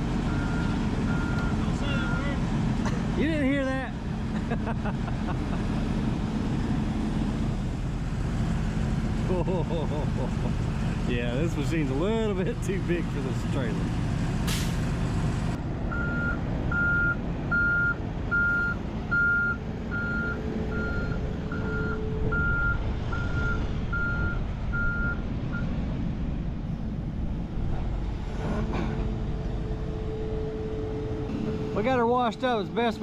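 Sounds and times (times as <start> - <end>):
diesel engine running: 0.0 - 33.0
excavator travel alarm beeping: 0.3 - 2.4, 15.9 - 25.7.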